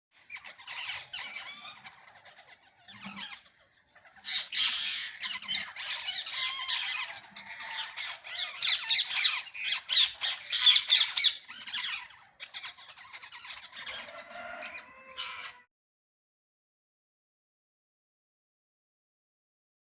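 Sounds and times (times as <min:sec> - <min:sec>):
parrot squawking: 0:00.2 - 0:15.7.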